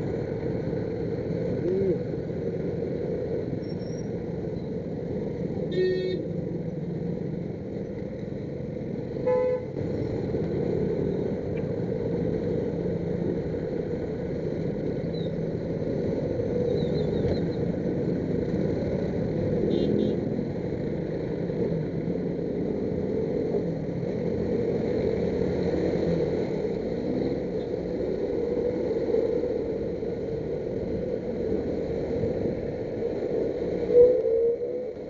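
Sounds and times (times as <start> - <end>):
heavy road traffic: 0.0 - 35.0
car horn honks: 5.7 - 6.2, 9.3 - 9.7.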